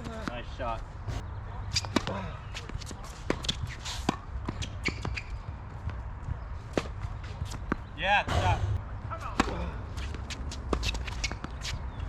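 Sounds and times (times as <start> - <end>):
tennis ball bouncing: 9.4 - 11.7.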